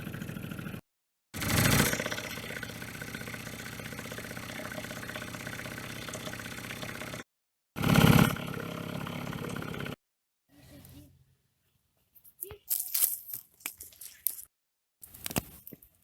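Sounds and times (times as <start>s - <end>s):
engine running steadily: 0.0s - 0.8s, 1.4s - 7.2s, 7.8s - 10.0s.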